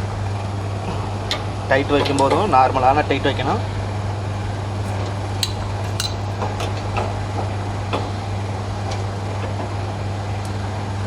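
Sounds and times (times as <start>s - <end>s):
low machine hum: 0.0s - 11.0s
metallic tool clicks: 5.4s - 6.4s.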